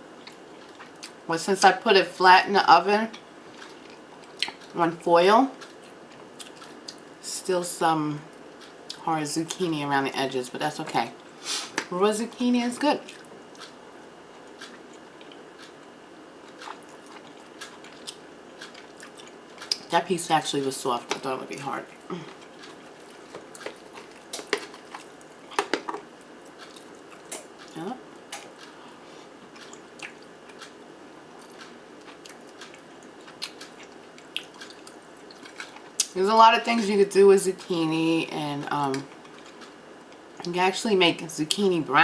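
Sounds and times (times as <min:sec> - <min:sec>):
chewing food: 0:00.2 - 0:01.2, 0:03.5 - 0:04.8, 0:05.6 - 0:07.1, 0:13.0 - 0:19.9, 0:21.0 - 0:36.2, 0:38.9 - 0:40.5.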